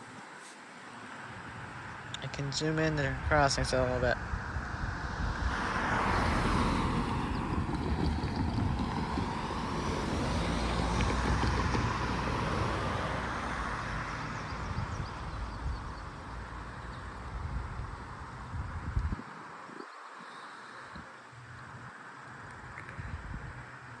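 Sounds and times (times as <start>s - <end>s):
vehicle passing with low rumble: 1.2s - 19.2s.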